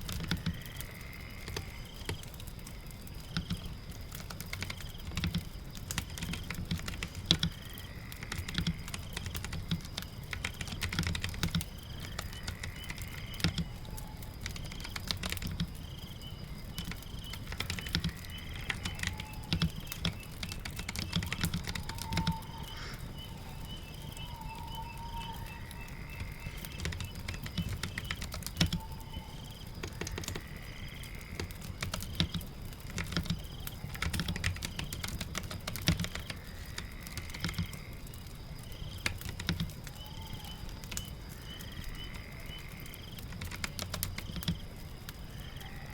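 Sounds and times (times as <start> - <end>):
rain patter: 0.0 - 45.9
keyboard typing clicks: 16.8 - 22.7, 26.1 - 29.2.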